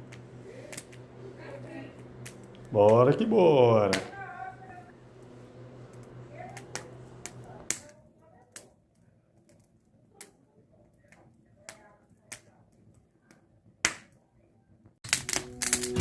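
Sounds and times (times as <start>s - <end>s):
bonfire wood popping: 0.0s - 14.2s, 15.0s - 16.0s
music: 15.1s - 16.0s.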